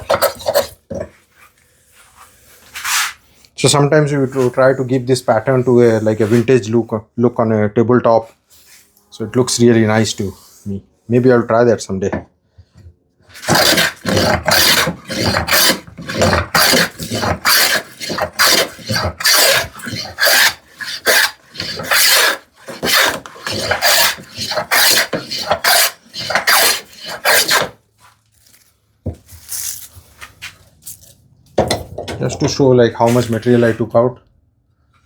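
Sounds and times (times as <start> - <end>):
hand plane shaving wood: 0.0 - 1.0, 13.3 - 27.8
faint scrapes: 8.4 - 11.5.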